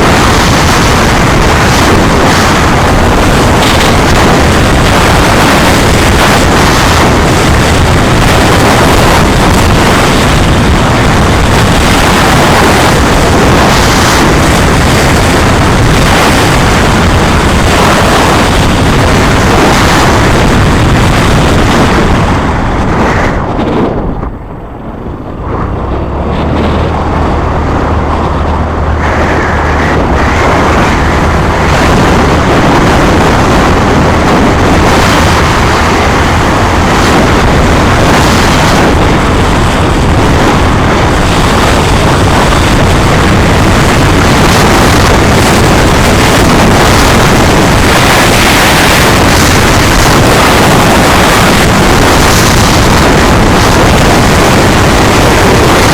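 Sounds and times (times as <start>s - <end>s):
wind rushing over microphone: 0.0s - 55.9s.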